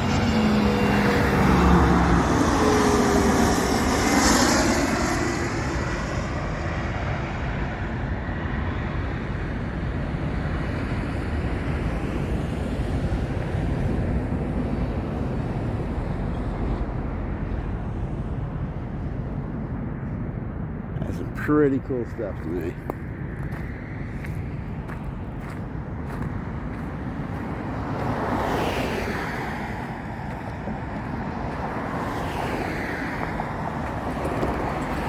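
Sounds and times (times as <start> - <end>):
airplane engine passing by: 0.0 - 35.0.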